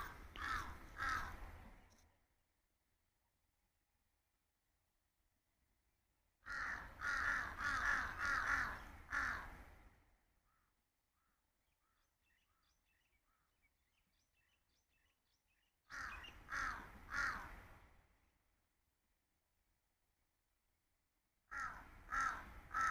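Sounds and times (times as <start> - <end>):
loud harsh bird calls: 0.0 - 1.5, 6.5 - 9.6, 15.9 - 17.7, 21.5 - 22.9.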